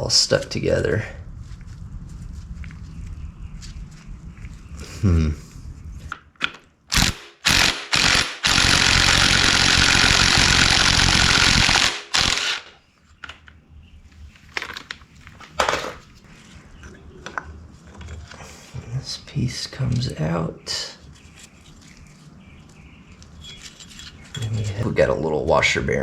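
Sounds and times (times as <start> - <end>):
power tool running: 6.9 - 12.8
metal parts clanking: 14.5 - 16.1, 23.4 - 24.8.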